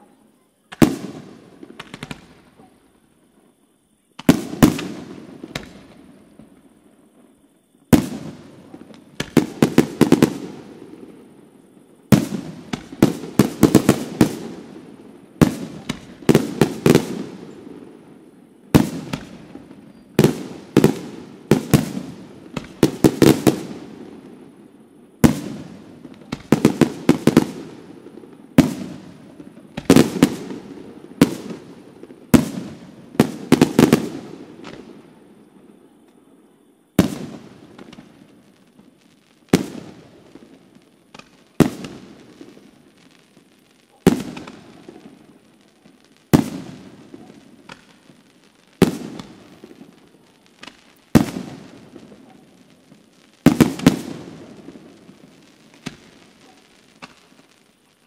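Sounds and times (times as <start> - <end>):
firework shells bursting: 46.3 - 48.2, 53.4 - 57.7.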